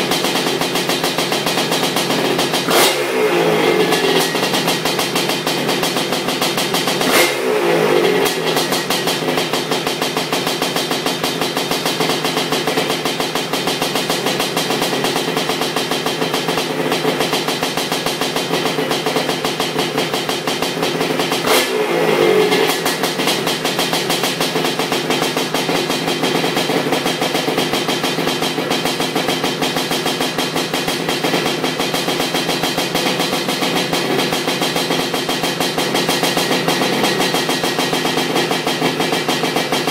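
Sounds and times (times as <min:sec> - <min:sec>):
two-stroke engine idling: 0:00.0 - 0:39.9
engine revving: 0:01.8 - 0:09.6, 0:21.1 - 0:24.4.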